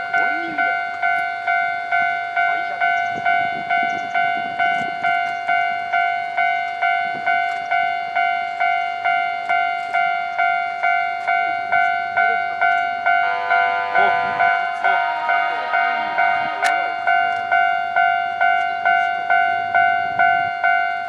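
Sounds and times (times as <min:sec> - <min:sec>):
level crossing warning bell: 0:00.0 - 0:21.0.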